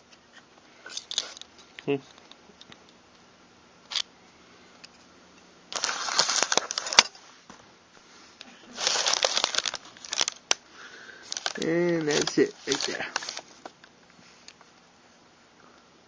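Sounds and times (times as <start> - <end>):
metal parts scraping and clicking: 0.9 - 2.7, 5.8 - 7.2, 11.3 - 13.4.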